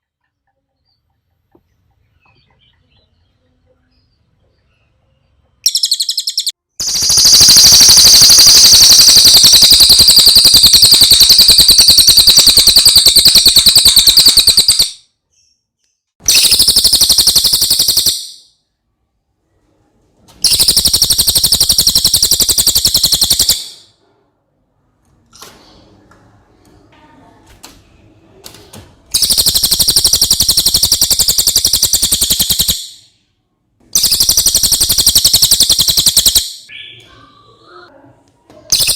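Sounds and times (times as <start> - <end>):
parrot high-pitched trill: 5.7 - 15.0, 16.2 - 18.4, 20.4 - 23.8, 29.2 - 33.0, 34.0 - 37.0.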